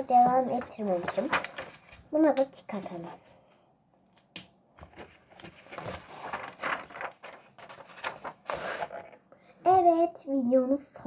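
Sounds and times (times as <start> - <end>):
paper rustling: 0.0 - 3.0, 4.8 - 9.2.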